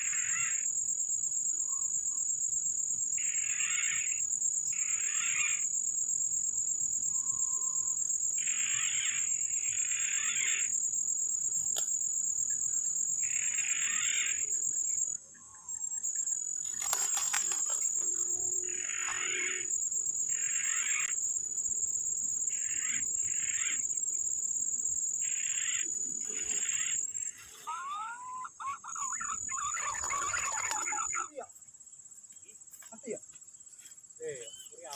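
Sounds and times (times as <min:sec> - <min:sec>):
high-pitched insect chorus: 0:00.0 - 0:34.9
brief rustle: 0:16.6 - 0:18.0.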